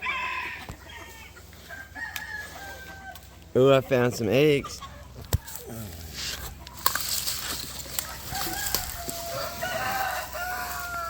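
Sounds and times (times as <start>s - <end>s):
rooster crowing: 0.0s - 3.2s, 8.0s - 11.0s
chickens: 0.0s - 11.0s.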